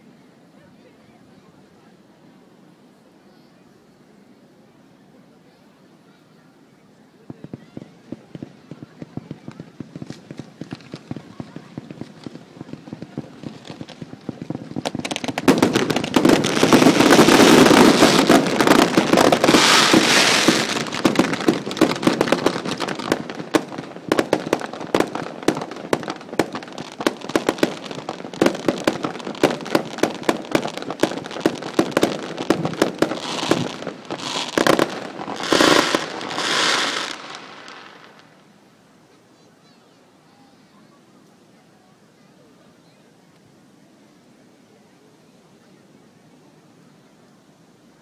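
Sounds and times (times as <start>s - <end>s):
fireworks hissing and crackling: 5.5s - 43.6s.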